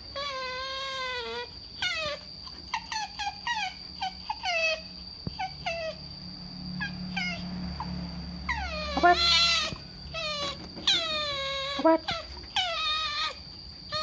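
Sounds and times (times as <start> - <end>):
otter squeaking: 8.5 - 14.0.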